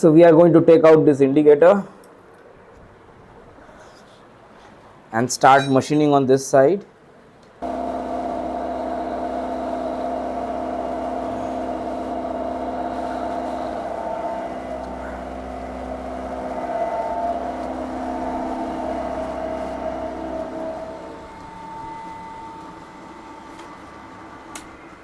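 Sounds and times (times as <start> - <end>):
milling machine cutting metal: 7.6 - 25.0.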